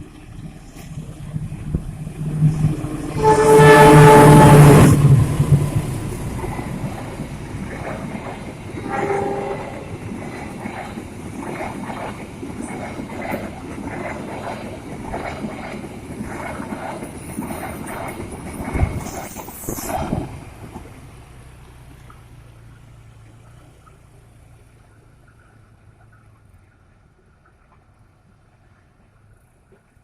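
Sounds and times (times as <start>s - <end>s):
train horn blast: 3.1s - 5.1s, 8.8s - 9.9s
train wheels clicking over rail joints: 4.2s - 24.2s.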